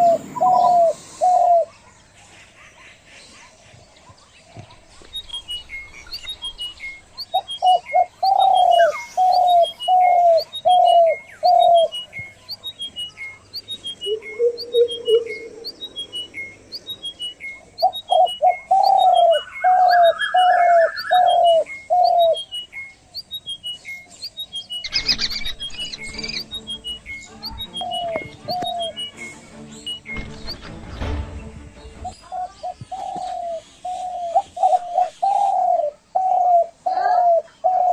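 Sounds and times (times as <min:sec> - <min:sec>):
birds calling: 0:00.0 - 0:37.9
bird short high falling notes: 0:05.2 - 0:22.6.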